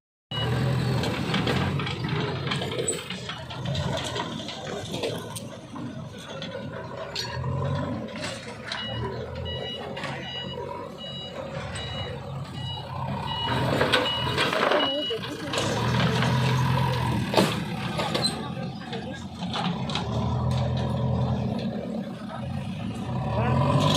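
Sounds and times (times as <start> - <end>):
reversing alarm beeping: 0.3 - 1.0, 7.2 - 15.8
bulldozer diesel engine running: 0.3 - 23.9.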